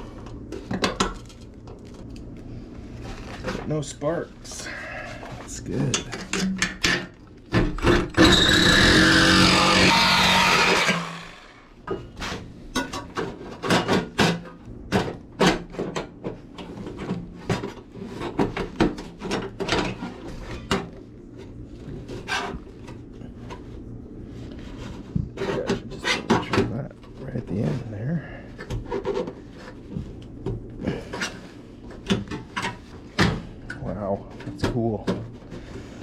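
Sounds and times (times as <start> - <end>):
power tool on sheet metal: 7.8 - 11.7.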